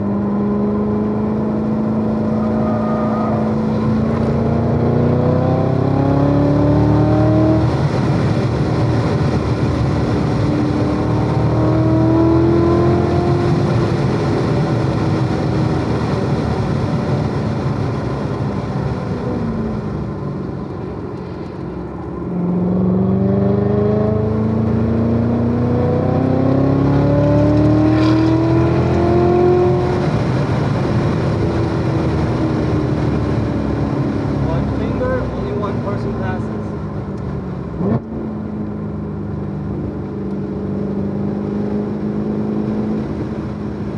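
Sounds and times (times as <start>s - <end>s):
car engine revving hard: 0.0s - 16.2s, 22.4s - 36.5s.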